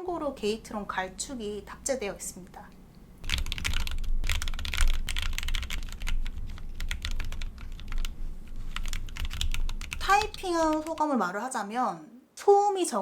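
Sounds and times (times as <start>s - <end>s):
mechanical keyboard typing: 3.2s - 11.1s.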